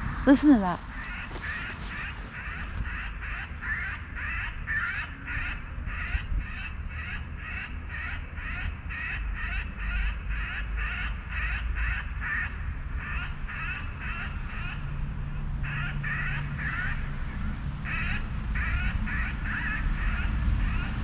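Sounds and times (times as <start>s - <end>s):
recorded bird distress squawks: 0.3s - 12.4s.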